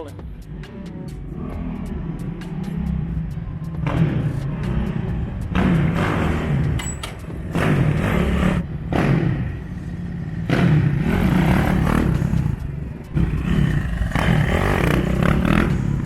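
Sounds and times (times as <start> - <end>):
dirt bike engine revving: 3.8 - 6.8, 7.4 - 16.0.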